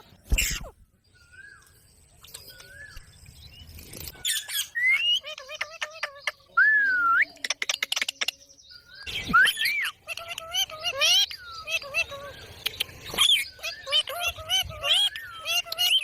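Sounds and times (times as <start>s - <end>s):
parrot whistles and chirps: 4.2s - 5.4s, 9.0s - 10.0s.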